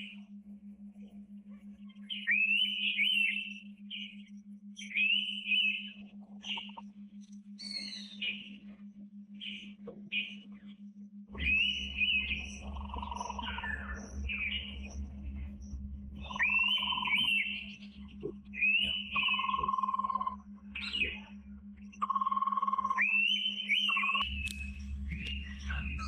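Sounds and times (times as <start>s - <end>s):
rapid pulsed animal trill: 0.0s - 26.0s
steady low hum: 0.0s - 26.0s
bird whistled calls: 2.1s - 4.2s, 4.8s - 6.8s, 7.6s - 8.6s, 11.4s - 14.8s, 16.2s - 17.8s, 18.5s - 21.3s, 22.0s - 26.0s.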